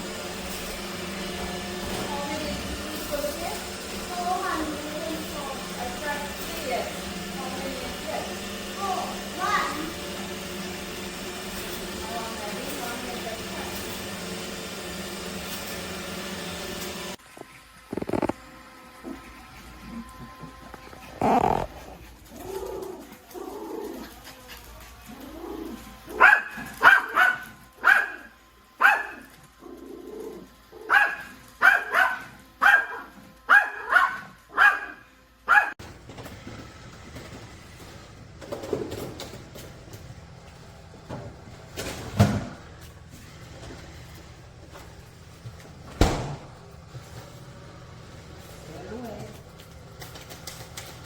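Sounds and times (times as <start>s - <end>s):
dog barking: 26.1s - 29.3s, 30.8s - 35.8s.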